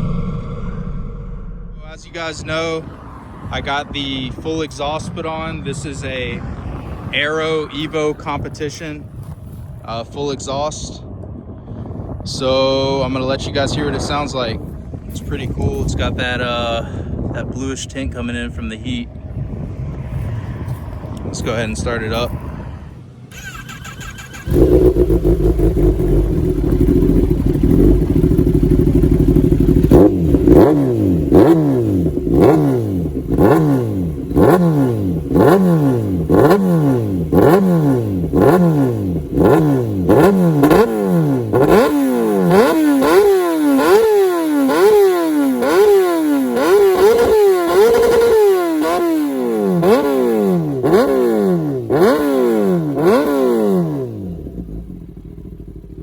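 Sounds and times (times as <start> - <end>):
motorcycle engine revving: 23.3 - 56.0.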